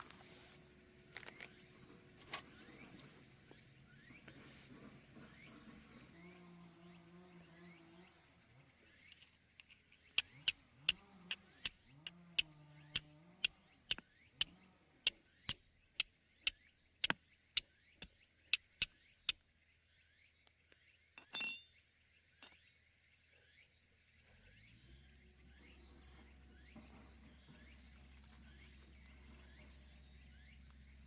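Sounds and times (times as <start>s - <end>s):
ringing clink: 21.2s - 22.6s.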